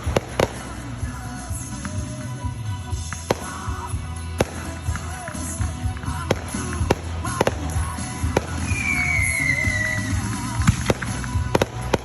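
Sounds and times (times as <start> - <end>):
fireworks banging: 0.0 - 12.0
falling firework whistle: 8.4 - 11.2.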